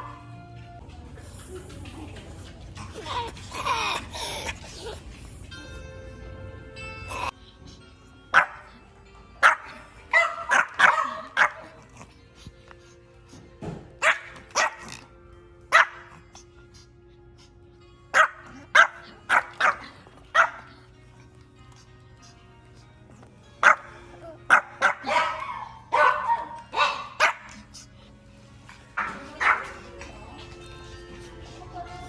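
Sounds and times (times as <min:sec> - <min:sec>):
background music: 0:00.0 - 0:32.0
dog barking: 0:08.3 - 0:08.8, 0:09.4 - 0:12.1, 0:14.0 - 0:15.1, 0:15.7 - 0:16.4, 0:18.1 - 0:20.8, 0:23.6 - 0:27.7, 0:28.9 - 0:30.0.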